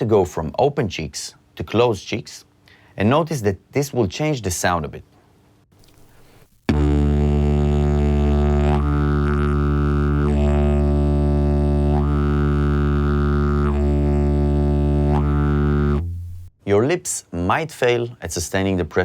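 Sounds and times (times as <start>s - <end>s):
didgeridoo drone: 6.7s - 16.4s.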